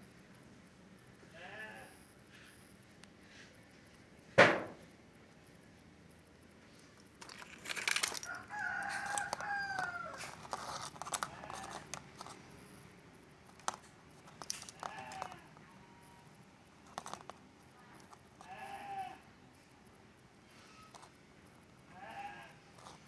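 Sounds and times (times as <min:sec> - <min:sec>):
sharp knock: 0:04.4 - 0:04.8
crinkling handling noise: 0:06.6 - 0:19.0, 0:20.7 - 0:21.2, 0:22.0 - 0:23.0
rooster crowing: 0:07.9 - 0:11.8.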